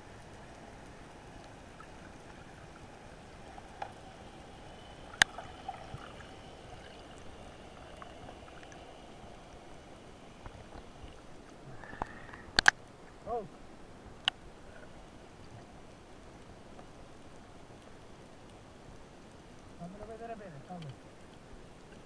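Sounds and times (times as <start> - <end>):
underwater hiss: 0.0 - 12.7
faint crackles and clicks: 0.0 - 22.0.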